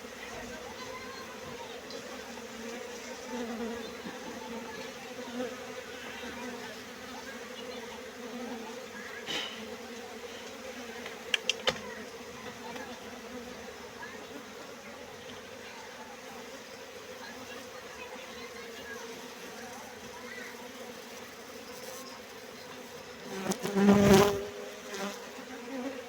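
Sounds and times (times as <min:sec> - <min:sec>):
honeybees buzzing: 0:00.0 - 0:26.0
sharp clicks: 0:11.3 - 0:11.8.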